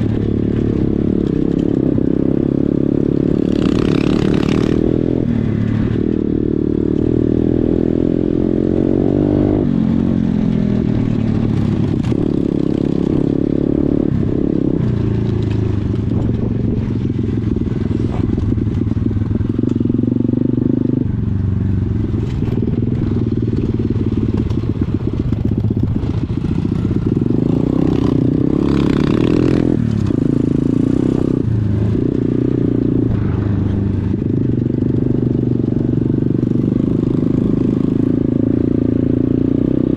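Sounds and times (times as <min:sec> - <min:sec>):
rattle and clatter: 0:22.2 - 0:27.2.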